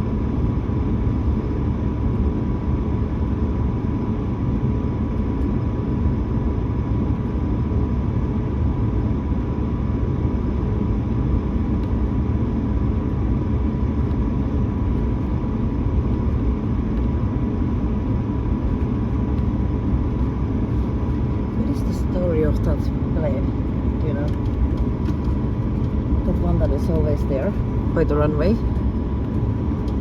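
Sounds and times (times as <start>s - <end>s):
aircraft cabin low rumble: 0.0s - 30.0s.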